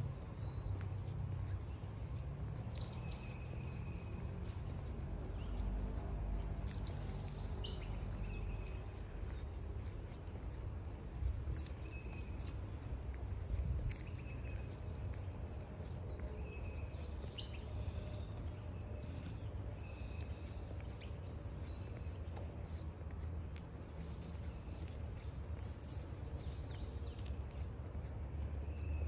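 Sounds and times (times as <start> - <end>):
steady low rumble: 0.0 - 28.8
birds chirping: 0.0 - 29.0.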